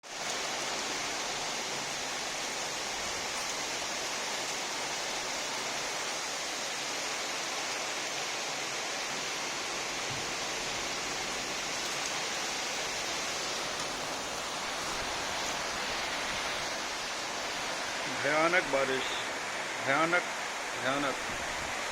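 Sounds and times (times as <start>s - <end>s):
heavy rain pouring down: 0.0s - 21.9s.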